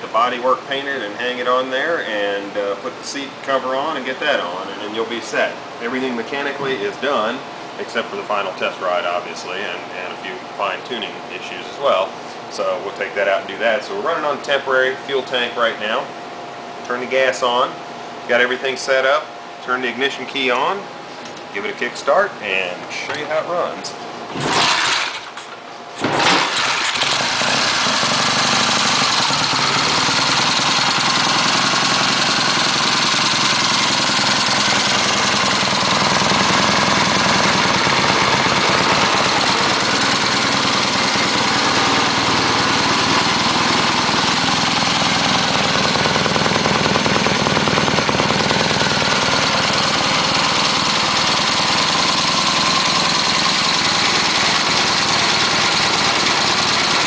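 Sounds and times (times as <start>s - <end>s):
motorcycle engine kick-started: 24.3s - 57.0s
motorcycle engine idling: 26.5s - 57.0s.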